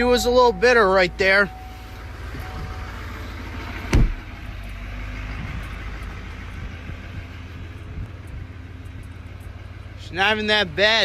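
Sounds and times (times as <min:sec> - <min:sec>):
diesel engine idling: 0:00.0 - 0:11.0
loud thump: 0:03.9 - 0:04.3.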